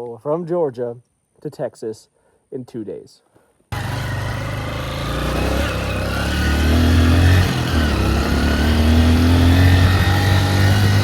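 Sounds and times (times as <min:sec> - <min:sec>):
motorcycle engine accelerating: 0:03.7 - 0:11.0.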